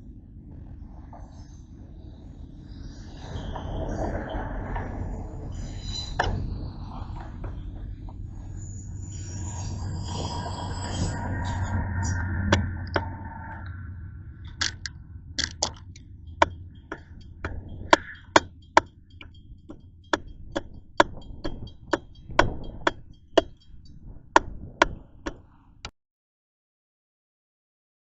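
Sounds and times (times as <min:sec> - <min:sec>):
low train rumble: 0:00.0 - 0:25.9
train wheels clicking over rail joints: 0:14.5 - 0:25.9.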